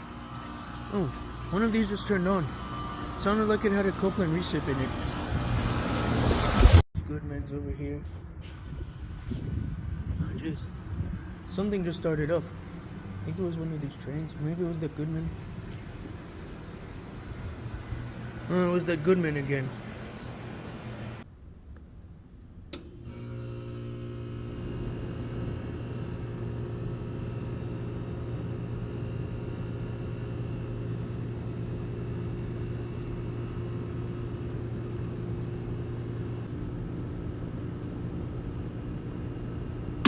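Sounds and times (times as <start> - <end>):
air conditioner compressor hum: 8.4 - 21.2, 23.0 - 40.0.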